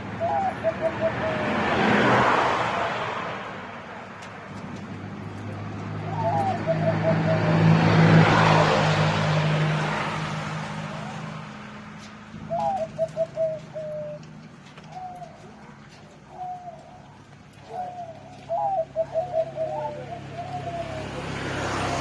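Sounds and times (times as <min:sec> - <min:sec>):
dove cooing: 0:00.0 - 0:02.2, 0:05.4 - 0:09.0, 0:12.3 - 0:22.0
passing vehicle rush: 0:00.0 - 0:22.0.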